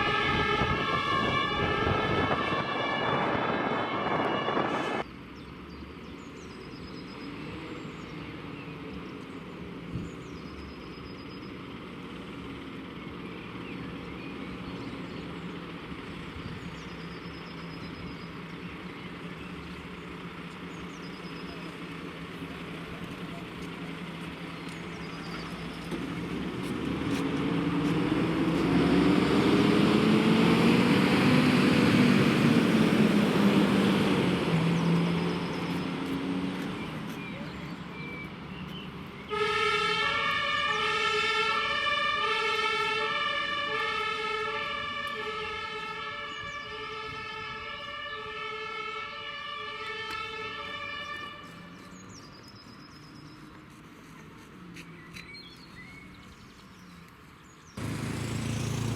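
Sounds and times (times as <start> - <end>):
two-tone siren: 0.0 - 5.0, 39.3 - 51.7
fire engine accelerating: 0.0 - 54.0, 57.4 - 58.9.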